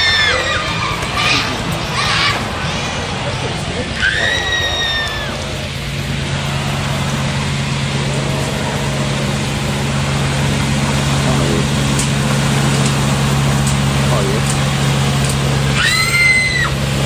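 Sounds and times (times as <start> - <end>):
motor engine humming: 0.0 - 17.0.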